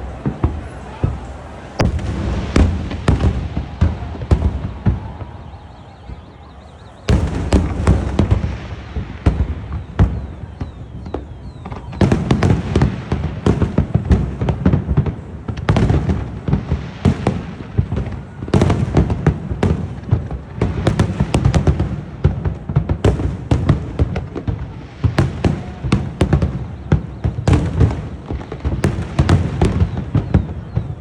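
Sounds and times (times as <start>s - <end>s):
fireworks bangs and crackling pops: 0.0s - 31.0s.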